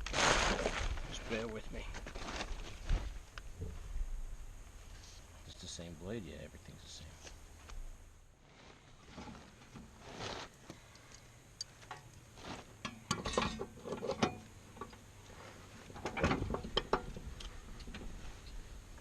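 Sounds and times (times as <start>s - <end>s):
metallic clanks of hand tools: 12.8s - 15.0s.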